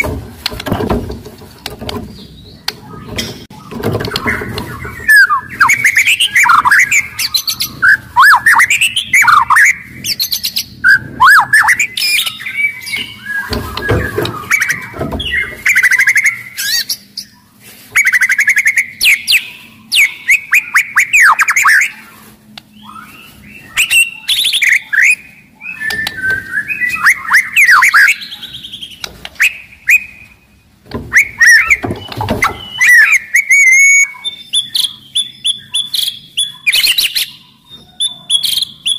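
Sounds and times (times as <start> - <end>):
songbird whistling and rattling: 0.0 - 38.9.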